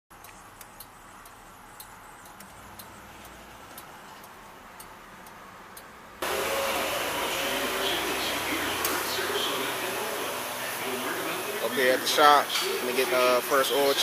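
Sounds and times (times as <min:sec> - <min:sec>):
soft ticks: 0:00.2 - 0:05.9
loud vehicle noise: 0:00.4 - 0:14.0.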